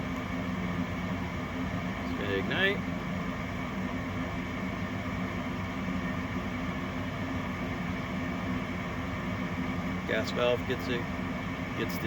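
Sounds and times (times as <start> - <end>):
furnace motor humming: 0.0 - 12.0.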